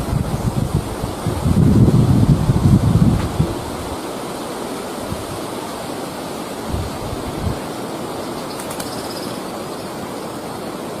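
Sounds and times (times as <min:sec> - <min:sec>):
wind buffeting microphone: 0:00.0 - 0:08.3
wind with rustling: 0:00.0 - 0:11.0.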